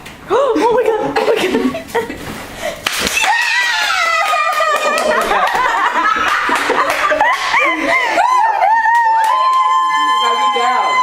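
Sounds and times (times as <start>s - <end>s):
high-pitched laughter: 3.2s - 9.0s.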